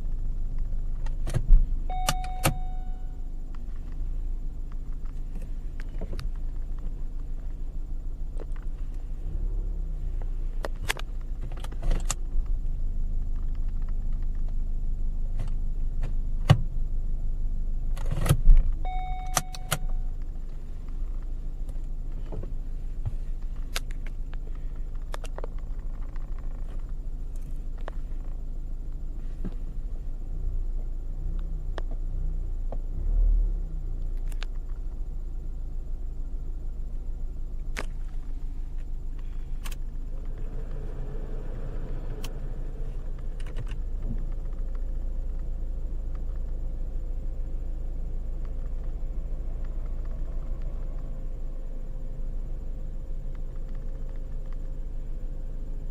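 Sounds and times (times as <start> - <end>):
car engine running: 0.0 - 55.9
short beep: 1.9 - 3.3, 18.8 - 20.1.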